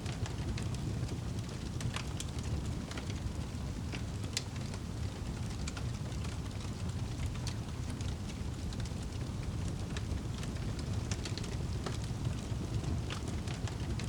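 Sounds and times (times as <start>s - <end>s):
fire crackling and popping: 0.0s - 14.0s
wood fire flames rumbling: 0.0s - 14.0s.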